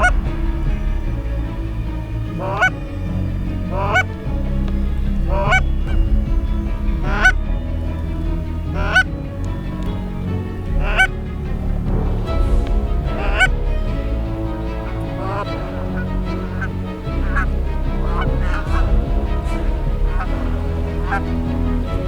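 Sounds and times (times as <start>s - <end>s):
low rumble: 0.0s - 22.0s
goose honking: 2.4s - 2.7s, 3.7s - 4.1s, 5.3s - 6.0s, 7.0s - 7.4s, 8.8s - 9.1s, 10.8s - 11.1s, 13.2s - 13.6s, 14.7s - 22.0s.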